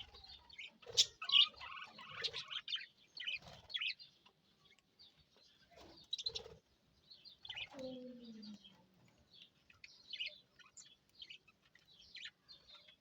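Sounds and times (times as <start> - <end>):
budgerigars chattering: 0.0 - 4.1, 5.9 - 6.6, 9.4 - 13.0.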